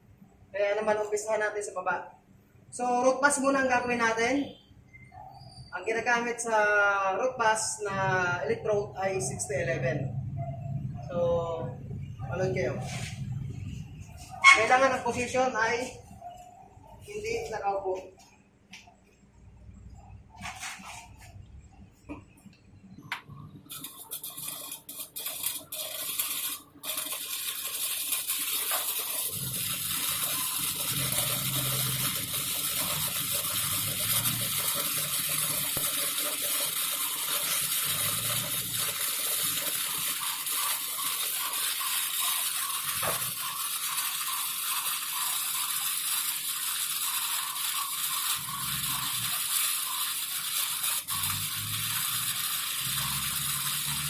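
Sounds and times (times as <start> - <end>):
welding arc crackling: 23.0 - 54.0.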